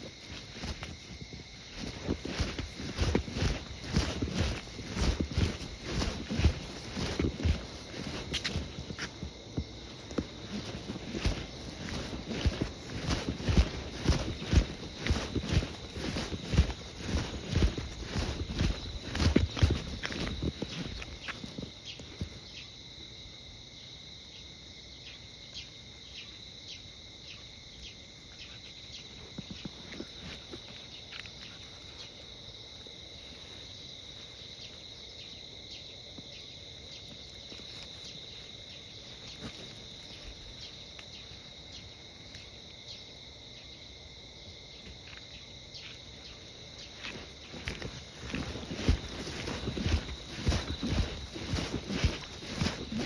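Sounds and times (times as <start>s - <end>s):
scuffing noises: 0.0s - 22.5s, 29.2s - 35.2s, 37.0s - 41.5s, 44.8s - 53.0s
insects chirping: 0.0s - 53.0s.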